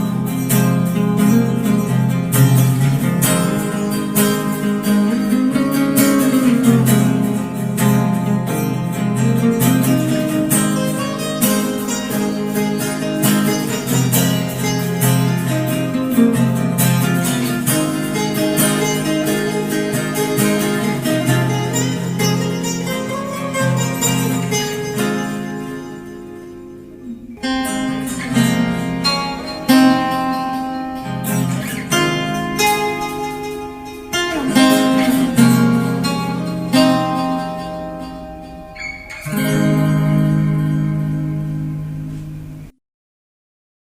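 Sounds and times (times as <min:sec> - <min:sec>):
acoustic guitar strumming: 0:00.0 - 0:42.8.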